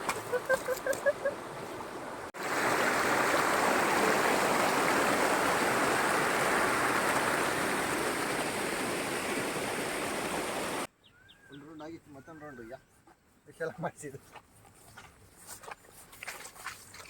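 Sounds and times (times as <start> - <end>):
stream rushing: 0.0 - 10.9.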